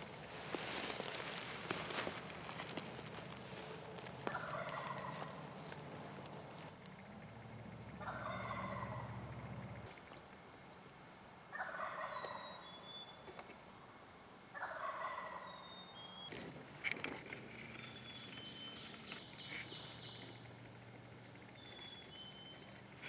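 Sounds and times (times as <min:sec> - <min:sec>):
turkey gobbling: 0:03.4 - 0:05.8, 0:08.0 - 0:09.4, 0:11.5 - 0:12.6, 0:14.6 - 0:15.6.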